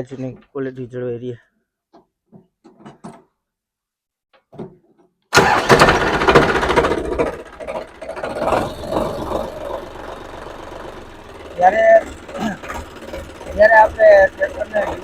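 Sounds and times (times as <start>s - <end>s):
diesel tractor engine starting: 5.3s - 15.0s.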